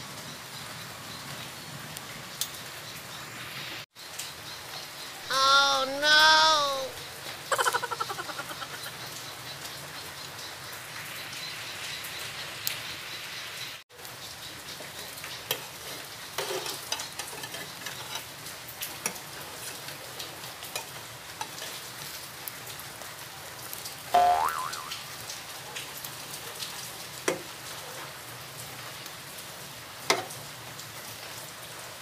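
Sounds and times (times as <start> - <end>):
bread sizzling in a pan: 7.4 - 24.7.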